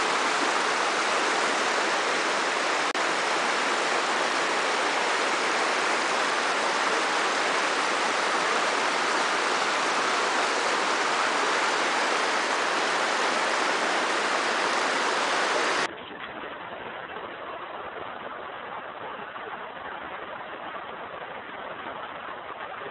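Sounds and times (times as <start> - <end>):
waterfall rushing water: 0.0 - 15.9.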